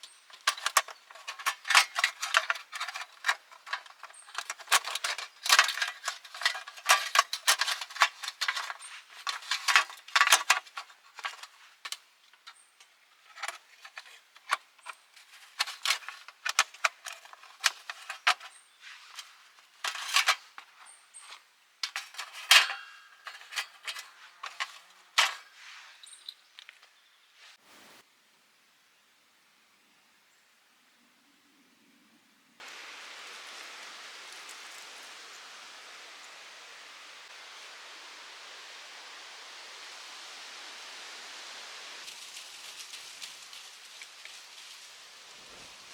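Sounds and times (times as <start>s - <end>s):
small metal items clinking: 0.0s - 26.8s.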